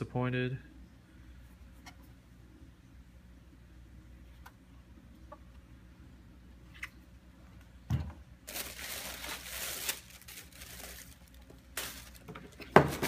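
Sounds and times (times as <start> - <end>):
paper crinkling and rustling: 8.5 - 13.0.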